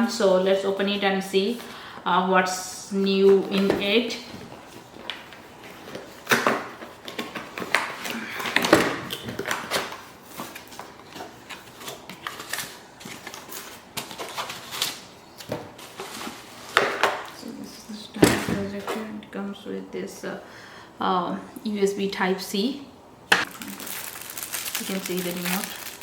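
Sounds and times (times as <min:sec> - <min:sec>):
packaging rustling and scraping: 0:03.3 - 0:17.3, 0:23.4 - 0:26.0.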